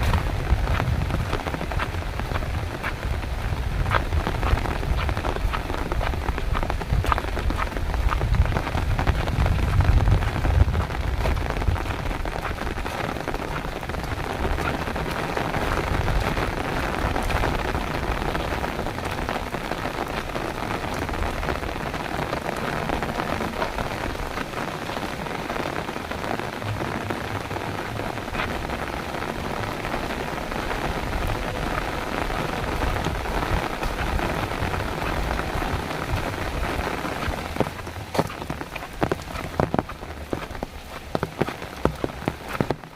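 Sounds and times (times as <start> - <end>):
low rumble: 0.0 - 19.4
heavy rain: 0.0 - 42.9.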